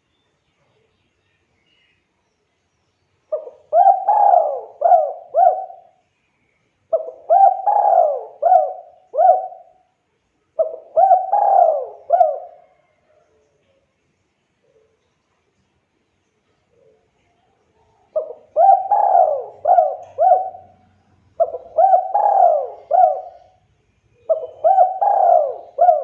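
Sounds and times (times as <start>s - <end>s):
dove cooing: 3.3s - 6.0s, 6.9s - 9.8s, 10.6s - 13.2s, 18.0s - 23.6s, 24.2s - 26.0s.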